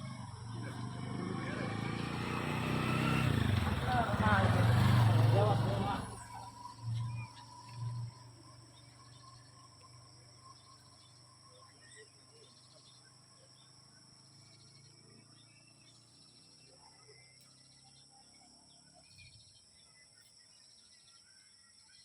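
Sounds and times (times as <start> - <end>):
faint insect chirps: 0.0 - 22.0.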